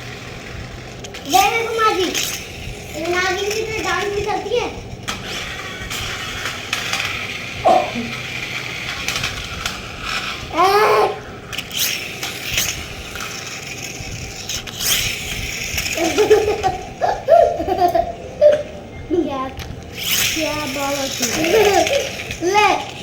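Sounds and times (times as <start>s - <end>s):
toy car motor whirring: 0.0s - 23.0s
toy car knocking clicks: 0.9s - 10.4s, 11.5s - 18.7s, 19.6s - 23.0s
children babbling and laughing: 1.2s - 5.0s, 7.6s - 8.2s, 10.5s - 11.4s, 15.8s - 23.0s
child squealing: 10.5s - 11.2s.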